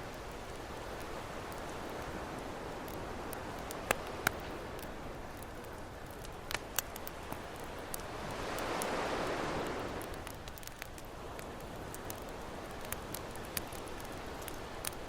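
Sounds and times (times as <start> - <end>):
campfire crackling and popping: 0.0 - 15.0
ocean waves breaking: 7.9 - 10.9.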